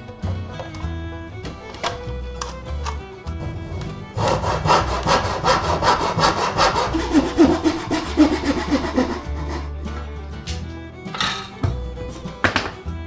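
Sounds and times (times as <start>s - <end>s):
hand saw cutting wood: 0.7s - 10.1s.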